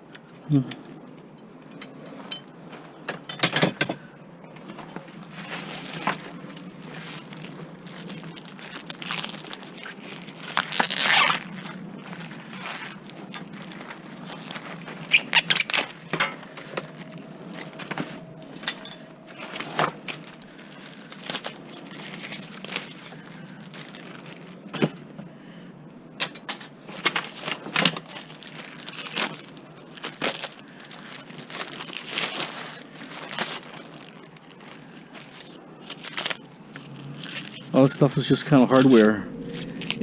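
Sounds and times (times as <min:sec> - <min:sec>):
rustling and crinkling: 0:04.5 - 0:40.0
objects knocking and clattering: 0:16.1 - 0:20.3.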